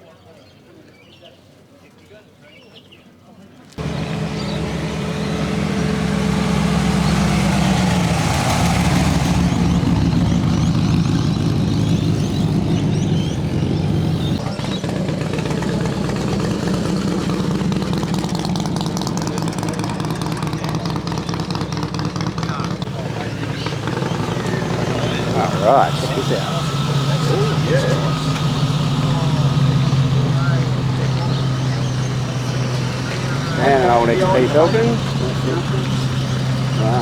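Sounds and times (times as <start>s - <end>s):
loud car engine running: 3.8s - 37.0s.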